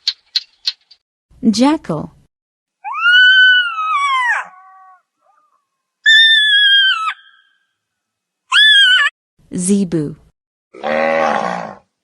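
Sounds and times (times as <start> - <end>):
jackal howling: 2.8 - 7.4.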